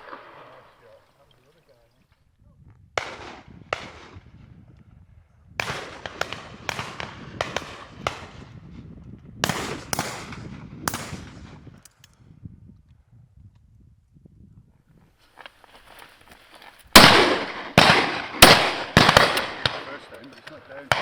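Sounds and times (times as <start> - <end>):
shotguns firing with echo: 0.0 - 1.1, 3.0 - 4.3, 5.6 - 8.6, 9.4 - 11.6, 16.9 - 21.0.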